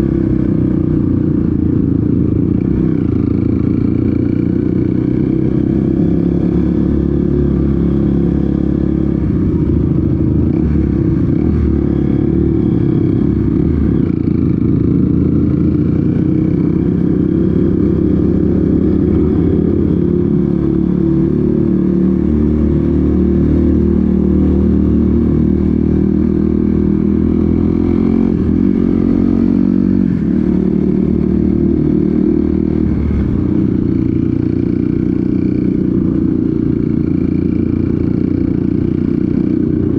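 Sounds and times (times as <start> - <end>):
off-road motorcycle engine: 0.0 - 39.9.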